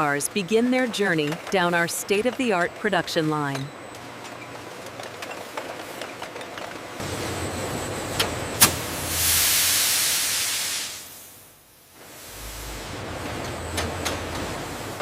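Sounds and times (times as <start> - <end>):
conveyor machinery running: 0.0 - 9.8, 11.9 - 15.0
loud hiss: 8.6 - 12.9.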